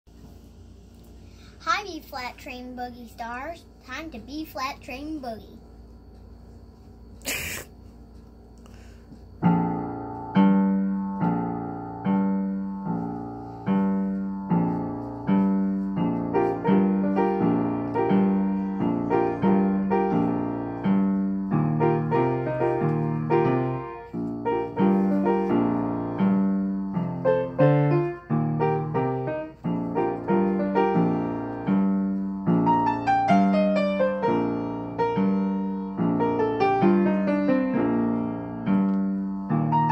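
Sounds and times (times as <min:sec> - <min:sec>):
boogie-woogie piano piece: 0:09.4 - 0:39.9.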